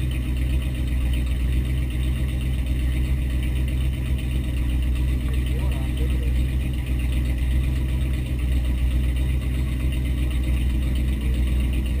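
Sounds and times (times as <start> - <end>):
engine idling heard from cabin: 0.0 - 12.0.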